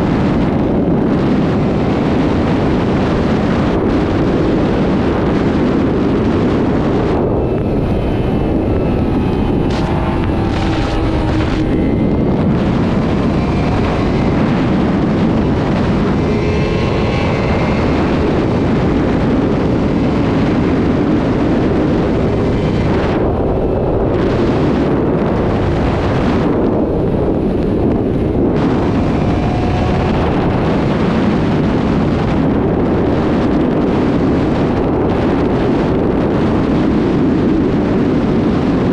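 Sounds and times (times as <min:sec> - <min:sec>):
motorcycle engine revving: 0:00.0 - 0:34.1
wind rushing over microphone: 0:00.0 - 0:38.9.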